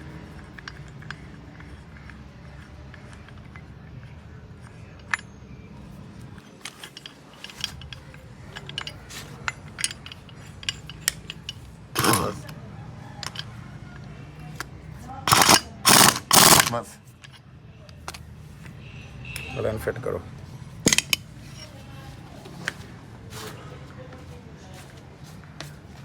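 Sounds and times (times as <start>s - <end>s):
metal hand tools clinking: 0.2s - 12.5s, 15.3s - 17.4s, 20.9s - 21.8s.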